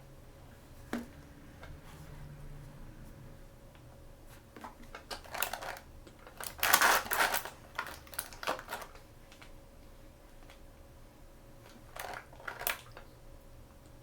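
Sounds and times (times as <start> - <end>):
packaging crinkling and rustling: 4.6 - 9.6, 11.7 - 13.1.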